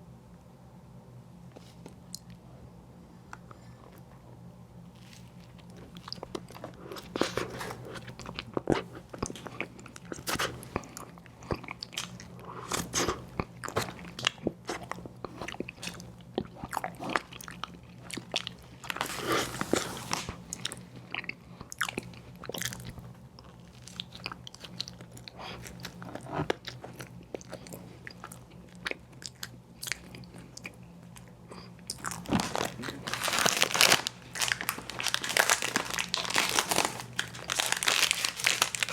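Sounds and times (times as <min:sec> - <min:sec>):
biting and crunching ice cream: 0:04.9 - 0:38.9
chewing: 0:04.9 - 0:38.9.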